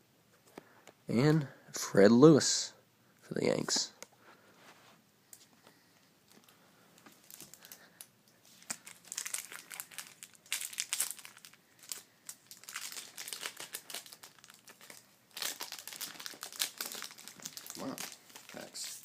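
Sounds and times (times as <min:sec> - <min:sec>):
foil wrapper crinkling and tearing: 0:07.2 - 0:07.8, 0:08.5 - 0:19.0.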